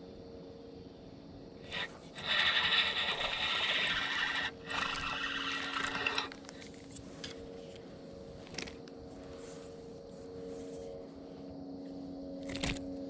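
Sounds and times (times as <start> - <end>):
fishing reel cranked: 1.7 - 6.7.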